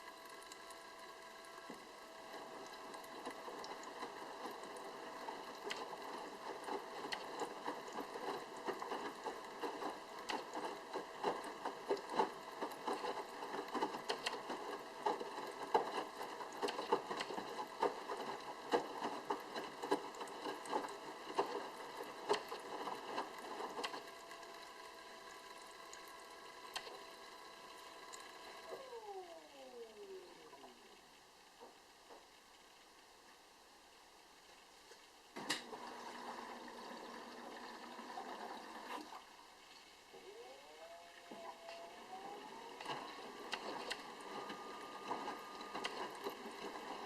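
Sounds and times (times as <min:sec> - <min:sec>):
pump humming: 0:00.0 - 0:32.6, 0:35.4 - 0:47.0
laundry and water sloshing in drum: 0:01.8 - 0:29.2, 0:41.8 - 0:47.0.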